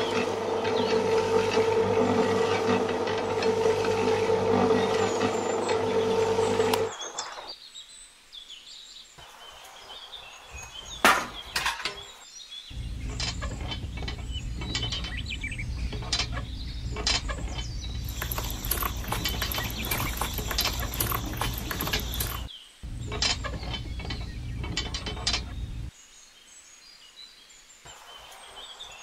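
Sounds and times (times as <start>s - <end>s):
small electric motor humming: 0.0s - 7.0s, 12.8s - 25.9s
plastic gears clicking rapidly: 17.0s - 22.5s.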